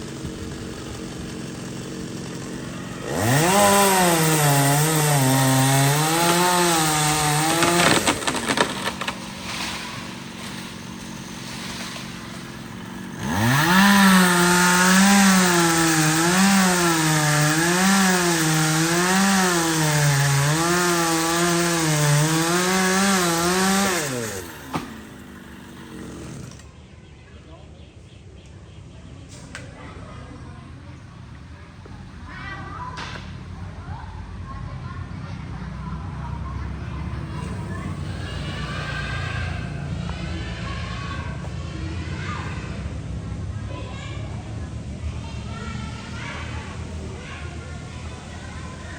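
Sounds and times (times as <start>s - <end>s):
chainsaw cutting branches: 0.0s - 26.7s, 36.9s - 39.8s.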